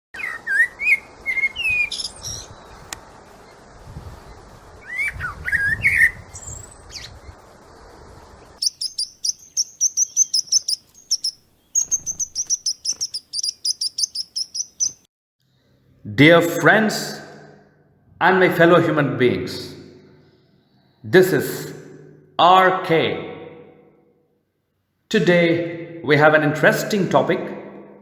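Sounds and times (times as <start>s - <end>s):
rapid high bird chirps: 0.2s - 2.8s, 4.8s - 7.4s, 8.4s - 15.1s
whistled gliding bird calls: 0.2s - 2.8s, 4.8s - 7.3s, 8.4s - 15.1s.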